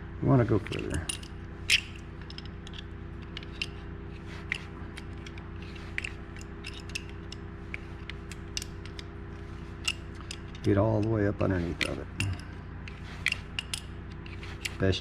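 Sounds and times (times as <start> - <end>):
steady low hum: 0.0 - 15.0
wrench metal clicks: 0.6 - 9.1, 9.8 - 14.8.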